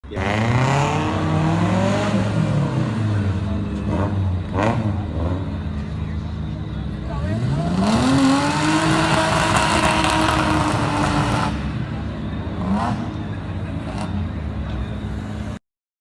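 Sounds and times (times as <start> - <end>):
car engine pulling hard: 0.0 - 15.5.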